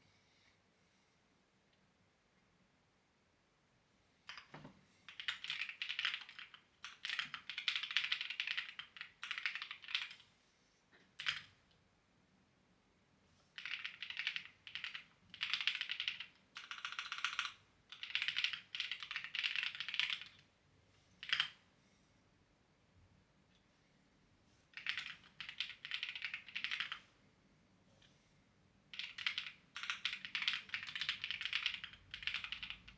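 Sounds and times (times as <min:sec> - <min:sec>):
typing on computer keyboard: 0:04.3 - 0:10.2, 0:11.1 - 0:11.6, 0:13.5 - 0:20.4, 0:21.2 - 0:21.6, 0:24.8 - 0:27.0, 0:28.9 - 0:32.9.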